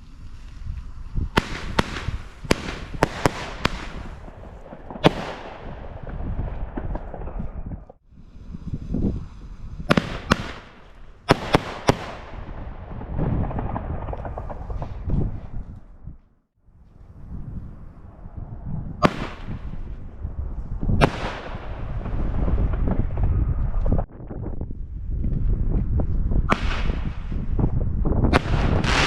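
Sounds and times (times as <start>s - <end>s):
rumble of firework launches: 0.0s - 16.2s, 17.1s - 29.0s
fireworks cracking bangs: 1.3s - 8.0s, 9.8s - 15.5s, 19.0s - 20.0s, 20.9s - 24.1s, 26.5s - 29.0s.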